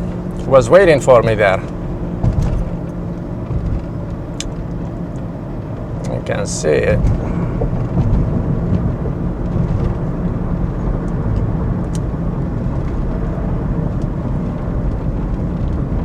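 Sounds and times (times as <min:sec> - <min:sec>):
car cabin rumble: 0:00.0 - 0:16.0.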